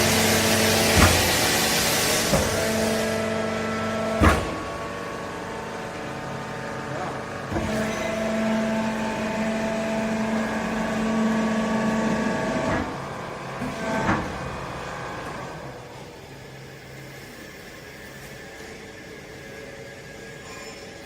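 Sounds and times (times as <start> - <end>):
hydraulic unit whining: 0.0 - 17.1.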